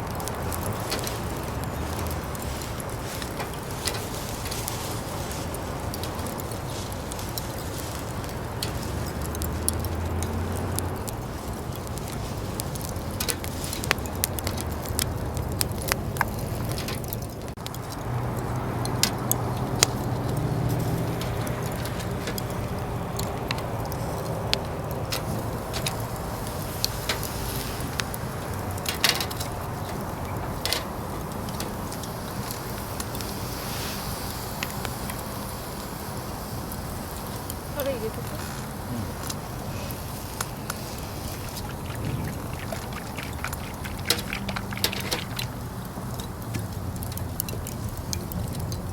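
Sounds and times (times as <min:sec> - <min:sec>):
charcoal fire crackling: 0:00.0 - 0:48.9
steady low rumble: 0:36.9 - 0:48.9.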